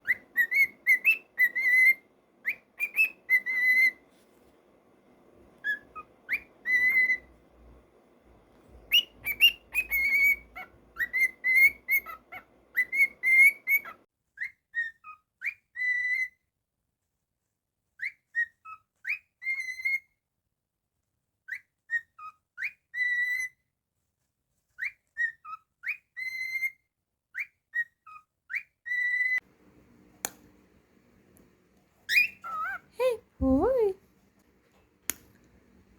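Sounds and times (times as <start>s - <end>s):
cockatiel whistling: 0.0s - 4.0s, 5.6s - 7.4s, 8.8s - 16.3s, 18.0s - 20.0s, 21.9s - 23.5s, 24.8s - 26.8s, 28.1s - 29.4s, 32.1s - 32.9s.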